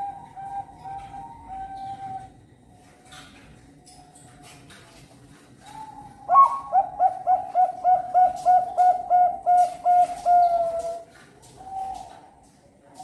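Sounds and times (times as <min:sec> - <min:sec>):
dove cooing song: 0:00.0 - 0:02.4, 0:05.6 - 0:12.5.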